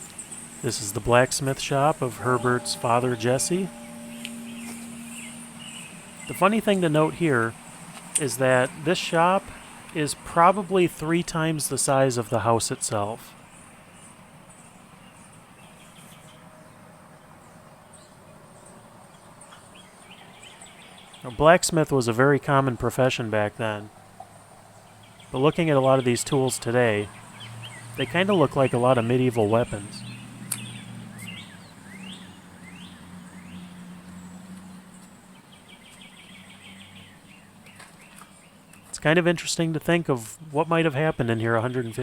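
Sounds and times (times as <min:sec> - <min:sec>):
bird trill: 0:00.0 - 0:10.3
steady low hum: 0:00.0 - 0:14.5
birds chirping: 0:00.0 - 0:23.0, 0:24.0 - 0:39.1, 0:40.6 - 0:42.0.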